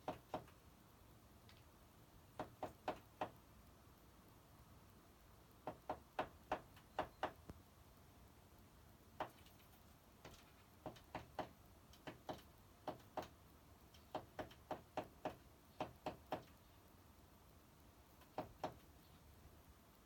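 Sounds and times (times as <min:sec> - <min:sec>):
bird pecking on window glass: 0:00.0 - 0:00.6, 0:02.3 - 0:03.4, 0:05.6 - 0:07.6, 0:09.2 - 0:16.7, 0:18.1 - 0:19.0.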